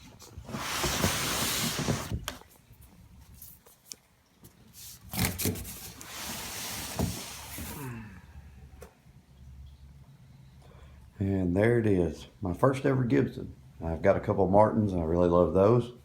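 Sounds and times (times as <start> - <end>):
cardboard box scraping and rubbing: 0.3 - 2.3, 4.8 - 7.8.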